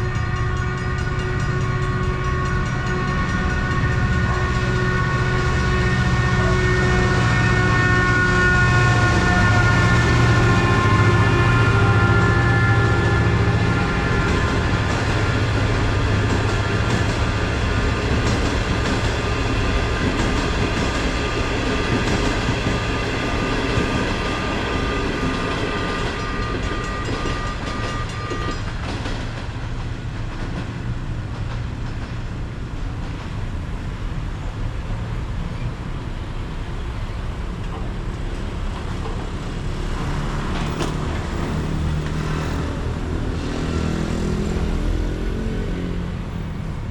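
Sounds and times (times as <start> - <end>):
train wagons rumbling over rails: 0.0 - 46.9.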